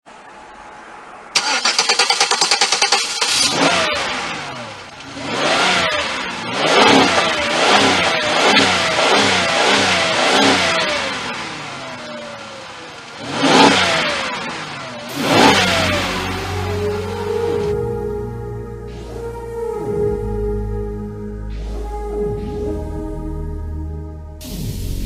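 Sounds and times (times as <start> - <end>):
car engine revving: 0.1 - 25.0.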